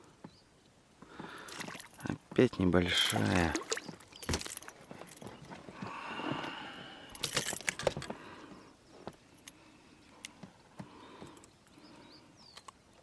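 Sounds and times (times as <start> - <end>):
fishing tackle rattling and clicking: 2.8 - 5.4, 7.1 - 8.2.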